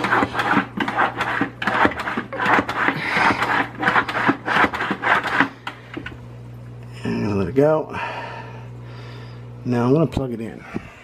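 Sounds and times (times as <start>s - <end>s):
hand pump strokes: 0.0s - 5.8s.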